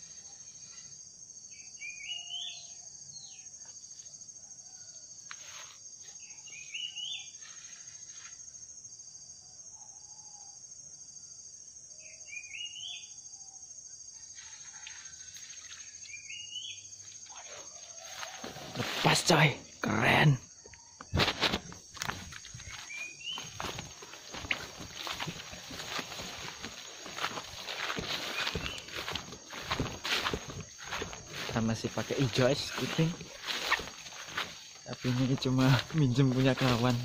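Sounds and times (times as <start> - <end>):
high-pitched insect drone: 0.0 - 37.0
bird rising stepped call: 21.1 - 31.4.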